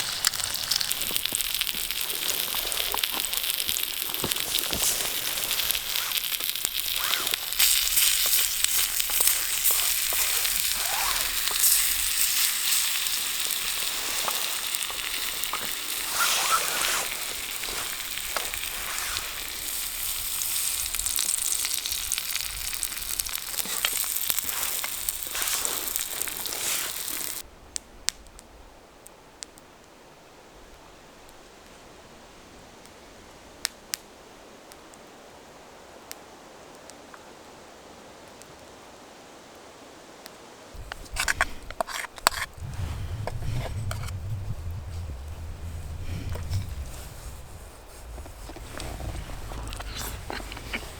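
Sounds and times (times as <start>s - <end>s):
food sizzling in a pan: 0.0s - 27.4s.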